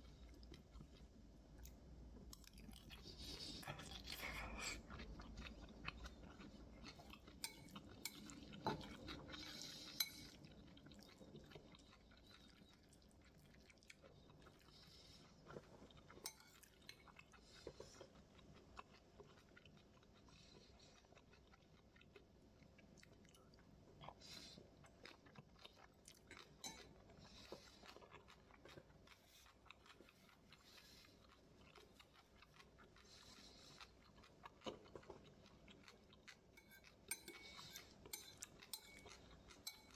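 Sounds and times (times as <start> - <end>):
person chewing and crunching: 0.2 - 39.9
spoon clicking against bowl: 36.6 - 37.4, 38.1 - 39.9.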